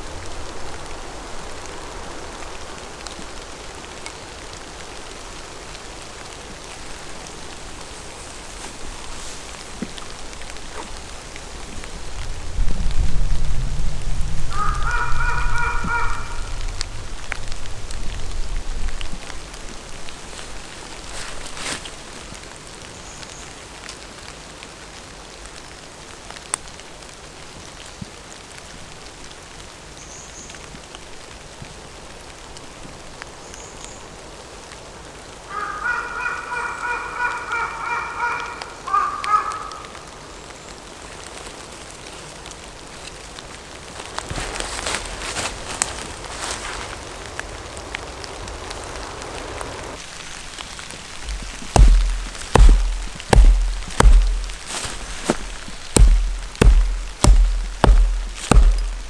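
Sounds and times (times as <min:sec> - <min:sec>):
rain falling: 0:00.0 - 0:14.5, 0:16.4 - 0:35.5, 0:38.4 - 0:59.0
short rustle: 0:20.1 - 0:22.3, 0:43.8 - 0:47.1, 0:51.3 - 0:59.0.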